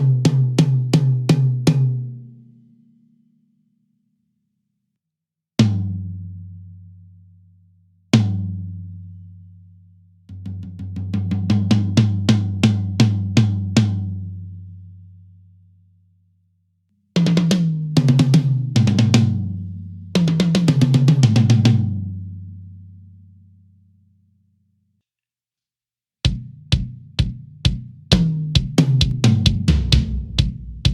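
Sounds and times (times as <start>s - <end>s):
tom drums struck with sticks: 26.3s - 30.9s.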